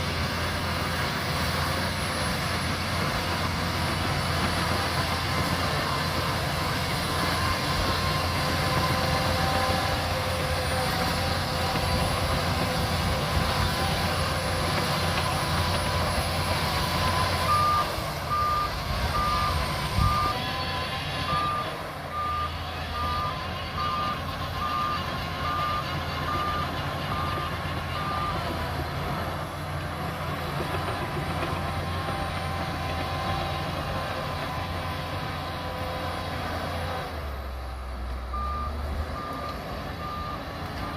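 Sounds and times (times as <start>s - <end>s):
bulldozer diesel engine running: 0.0s - 40.9s
reversing alarm beeping: 3.8s - 28.6s, 38.3s - 40.9s.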